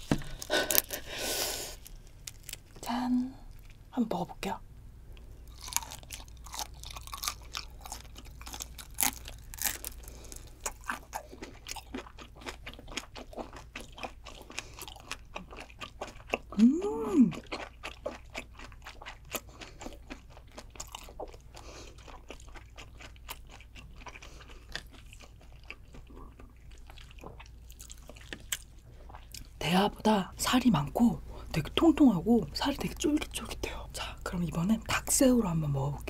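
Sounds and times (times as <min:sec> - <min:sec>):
wet crunchy chewing: 0:00.0 - 0:02.9, 0:05.4 - 0:29.6
person humming mmm: 0:16.5 - 0:17.4.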